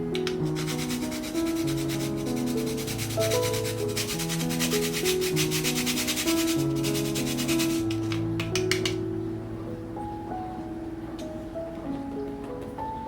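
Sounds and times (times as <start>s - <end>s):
background music: 0.0s - 13.0s
fast scraping strokes: 0.3s - 8.3s.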